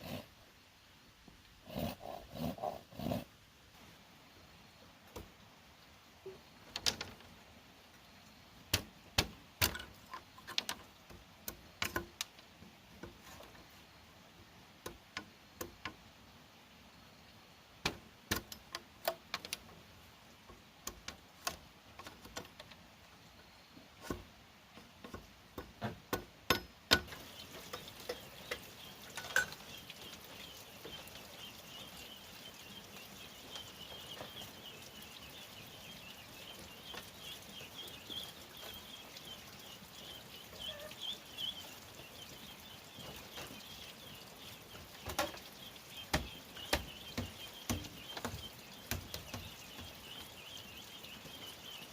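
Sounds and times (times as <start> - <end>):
hand tools knocking on bamboo: 25.0 - 27.3, 46.1 - 49.9.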